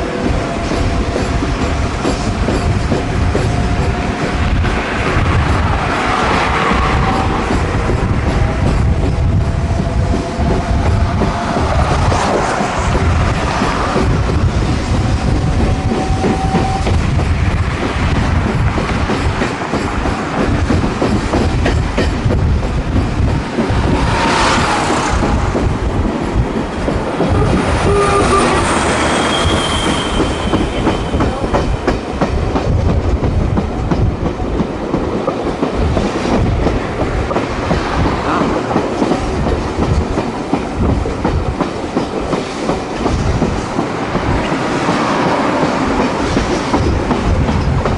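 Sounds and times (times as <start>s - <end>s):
train rumble: 0.0s - 47.9s.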